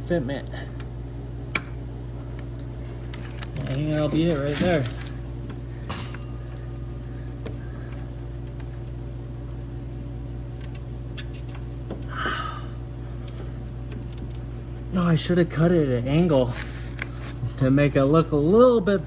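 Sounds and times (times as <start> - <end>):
low background hum: 0.0 - 19.0
faint clicks and handling noises: 2.3 - 5.6, 6.5 - 12.1, 12.8 - 14.9.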